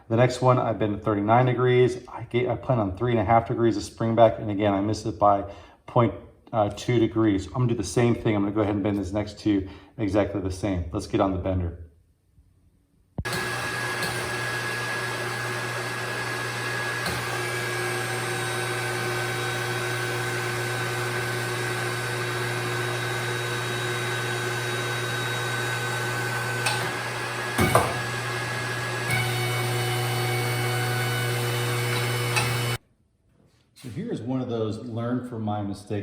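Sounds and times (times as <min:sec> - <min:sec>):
electric motor running: 0:13.3 - 0:32.8.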